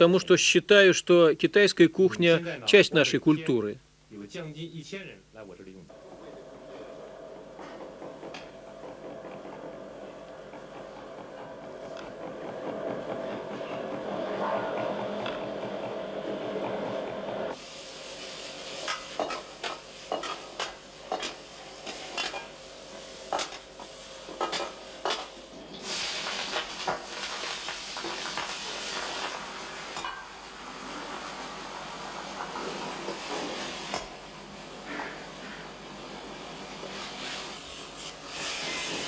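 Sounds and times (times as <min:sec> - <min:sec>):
food sizzling: 0:05.9 - 0:39.0
metal utensils clinking on pots: 0:18.8 - 0:25.9, 0:29.9 - 0:30.4.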